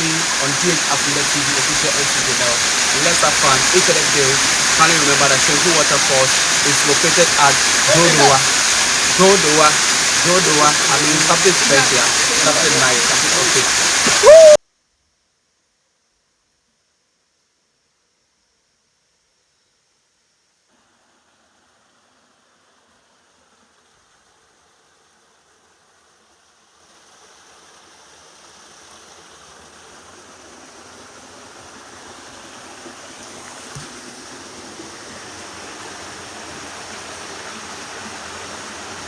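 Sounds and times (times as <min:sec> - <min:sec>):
waterfall rushing: 0:00.0 - 0:14.6, 0:30.9 - 0:39.0.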